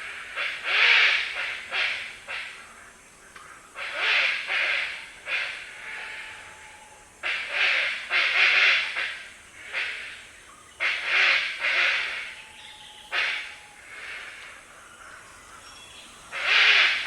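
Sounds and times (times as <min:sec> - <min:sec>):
hornbill giving harsh growling calls: 0:03.8 - 0:15.7, 0:16.3 - 0:17.0.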